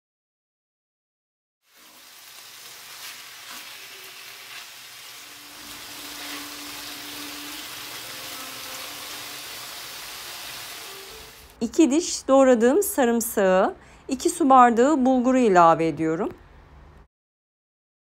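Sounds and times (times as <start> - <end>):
food sizzling in a pot: 1.6 - 11.6
wooden spoon scraping: 3.0 - 10.7.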